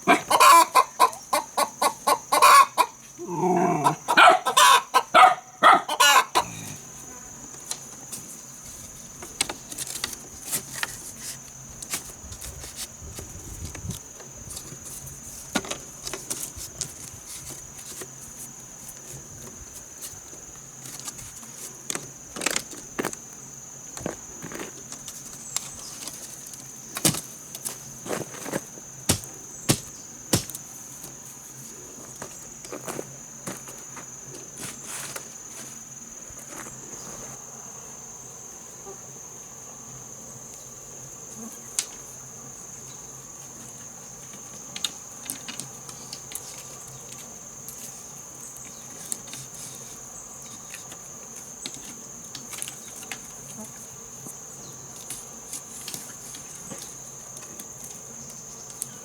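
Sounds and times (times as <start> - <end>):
sharp knocks: 29.1 - 30.6.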